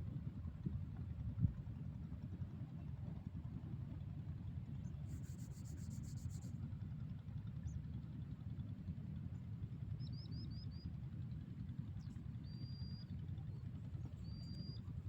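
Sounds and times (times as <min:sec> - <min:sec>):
low outdoor rumble: 0:07.4 - 0:15.0.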